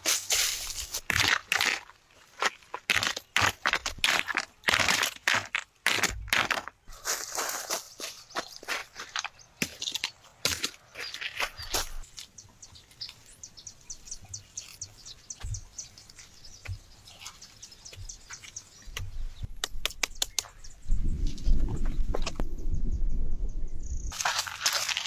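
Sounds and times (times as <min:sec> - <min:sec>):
bird chirping rapidly: 0:10.8 - 0:19.5.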